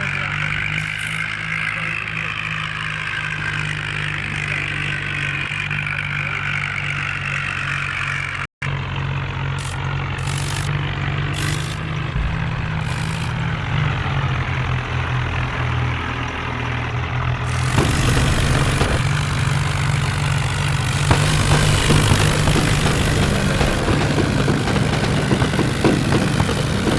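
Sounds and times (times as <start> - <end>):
tractor diesel engine running: 0.0 - 26.9
rattle and rushing noise: 9.6 - 14.6, 17.4 - 26.9.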